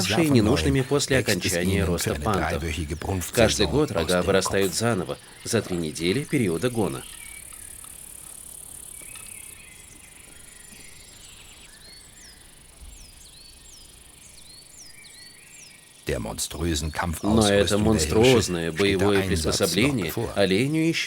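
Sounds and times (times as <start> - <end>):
voice-like sound: 0.0 - 5.0, 17.2 - 20.7
crickets and insects buzzing: 0.0 - 21.0.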